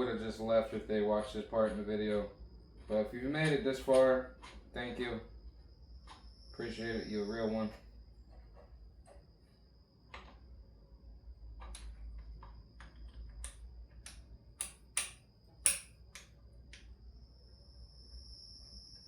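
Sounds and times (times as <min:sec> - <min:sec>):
faint high whine: 0:00.0 - 0:19.0
hand tools clicking on metal: 0:13.4 - 0:16.3.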